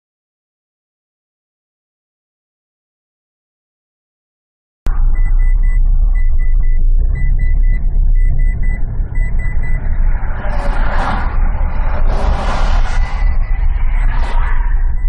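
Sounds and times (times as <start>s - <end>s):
car engine and road rumble: 4.9s - 15.0s
high beeping tone: 4.9s - 15.0s.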